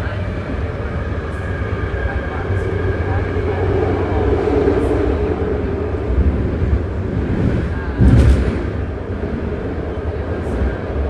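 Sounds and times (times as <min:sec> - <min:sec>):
train wheels rumbling on rail: 0:00.0 - 0:11.0
low thump: 0:08.0 - 0:08.9.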